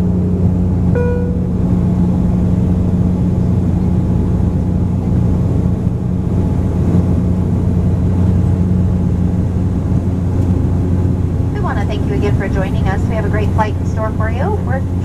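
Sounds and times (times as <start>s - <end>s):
turboprop propeller hum: 0.0s - 15.0s
airflow noise: 9.3s - 15.0s.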